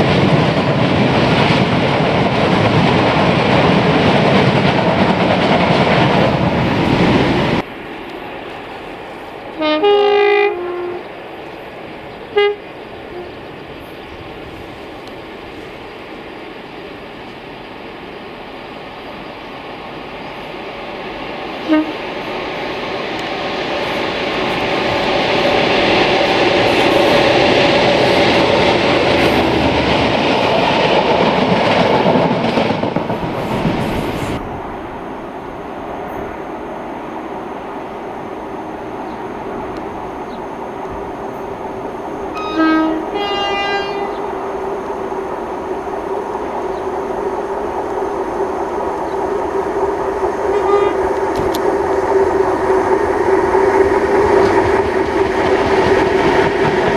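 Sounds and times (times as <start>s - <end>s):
train rumbling and clattering: 0.0s - 56.9s
two-tone locomotive horn: 6.1s - 7.6s, 9.5s - 11.2s, 12.3s - 13.6s, 21.5s - 30.3s, 42.3s - 44.6s, 50.4s - 51.7s
short horn toot: 21.6s - 22.1s, 42.4s - 44.2s, 50.5s - 51.6s.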